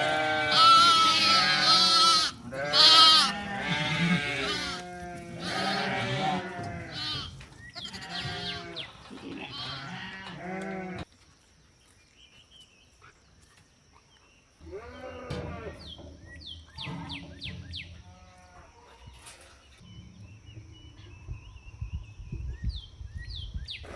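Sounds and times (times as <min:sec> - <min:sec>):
goats or sheep bleating: 0:00.0 - 0:11.1, 0:14.6 - 0:15.9.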